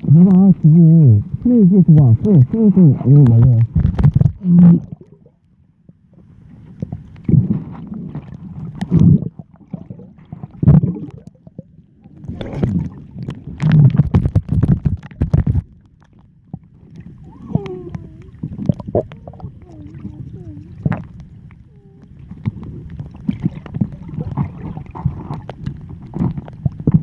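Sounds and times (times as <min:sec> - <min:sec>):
low muffled rumble: 0:00.0 - 0:27.0
seawater sloshing and splashing: 0:06.7 - 0:21.4, 0:22.1 - 0:27.0.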